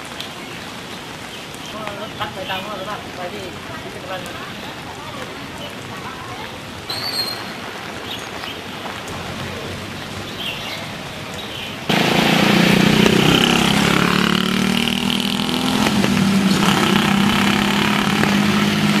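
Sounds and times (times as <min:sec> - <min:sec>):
rain hiss: 0:00.0 - 0:19.0
vehicle engine humming: 0:11.9 - 0:19.0.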